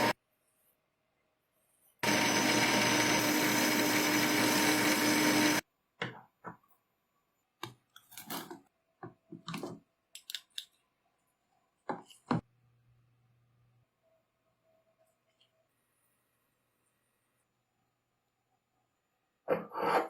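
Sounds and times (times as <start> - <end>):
power tool running: 2.0 - 5.6.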